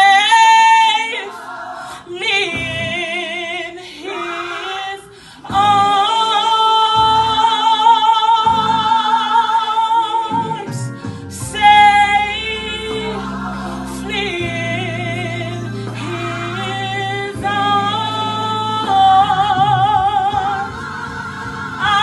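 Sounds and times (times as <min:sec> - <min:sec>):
low musical accompaniment: 0:00.0 - 0:22.0.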